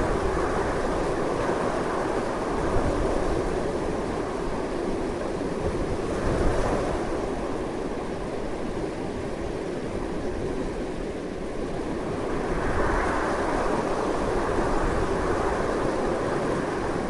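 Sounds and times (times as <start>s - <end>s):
strong wind rushing: 0.0s - 4.9s, 11.7s - 17.0s.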